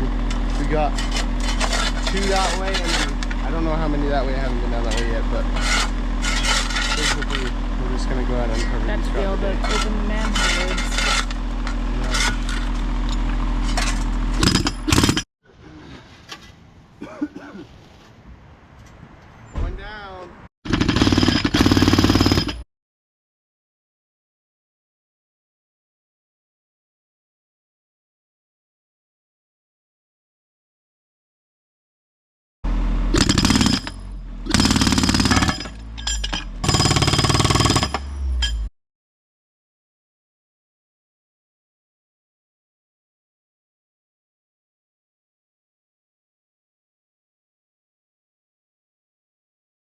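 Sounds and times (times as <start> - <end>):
engine running: 0.0 - 16.0, 32.7 - 38.7
jackhammer hammering asphalt: 0.1 - 15.2, 20.7 - 22.6, 33.1 - 38.7
steel tools scraping pavement: 0.3 - 15.2, 33.2 - 38.7
loud rattling burst: 20.7 - 22.6, 33.2 - 35.7, 36.6 - 38.0.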